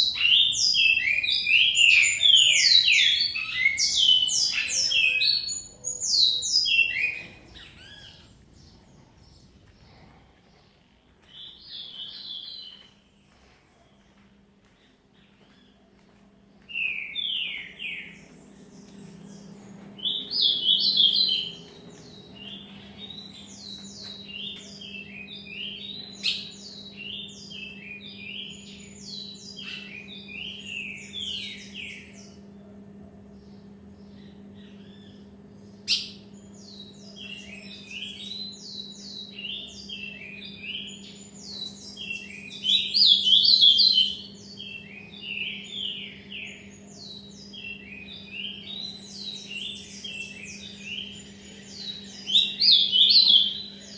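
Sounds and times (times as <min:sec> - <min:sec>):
songbirds singing: 0:00.0 - 0:53.9
low hum: 0:06.8 - 0:43.0.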